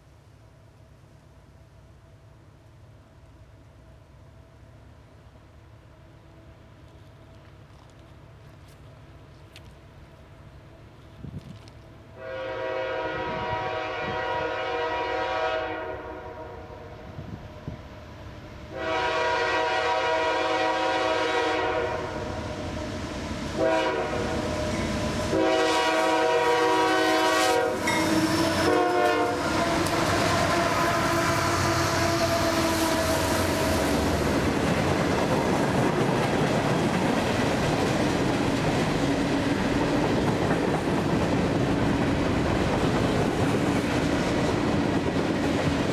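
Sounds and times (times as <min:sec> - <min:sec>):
locomotive air horn blasts: 0:12.2 - 0:17.1, 0:18.7 - 0:22.8, 0:23.6 - 0:33.8
steel wheels on rails: 0:22.6 - 0:45.9.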